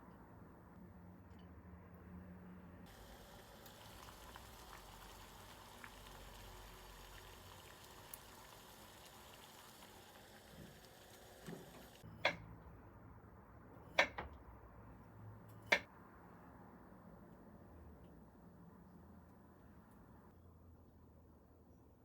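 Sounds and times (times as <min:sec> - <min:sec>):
food bubbling on stove: 0:02.9 - 0:12.1.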